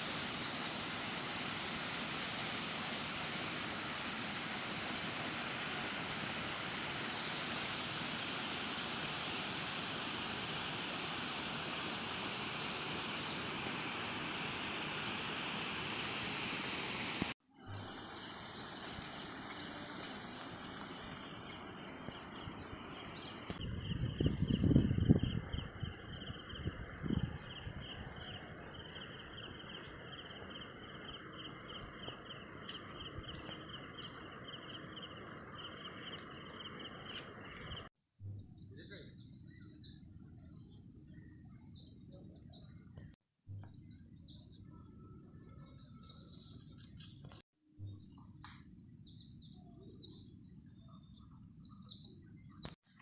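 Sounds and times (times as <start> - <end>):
crickets chirring: 17.8 - 53.0.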